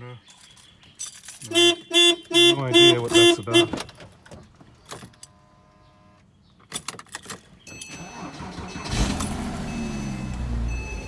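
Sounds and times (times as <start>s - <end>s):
car engine starting and idling: 7.7s - 11.0s
car starter cranking: 7.7s - 11.0s.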